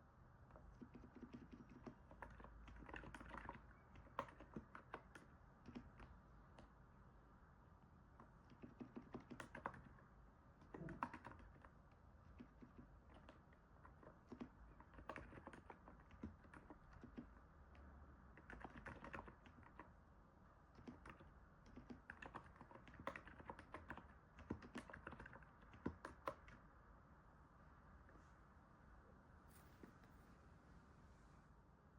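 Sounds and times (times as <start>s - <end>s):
keyboard typing: 0.5s - 6.7s, 8.2s - 10.0s, 10.6s - 20.0s, 20.7s - 26.7s.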